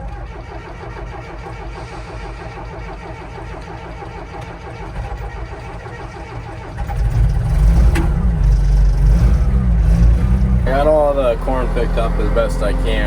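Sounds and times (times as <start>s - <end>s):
loader engine revving: 0.0s - 13.0s.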